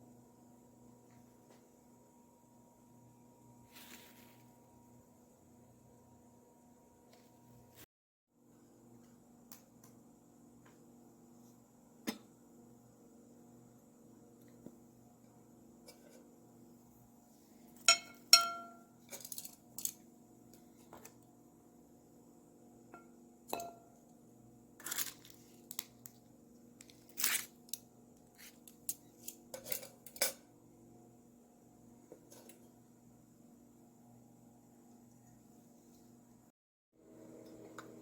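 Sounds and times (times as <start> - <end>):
faint steady hum: 8.4 - 38.0
glassware clinking: 17.9 - 19.4, 23.0 - 23.9.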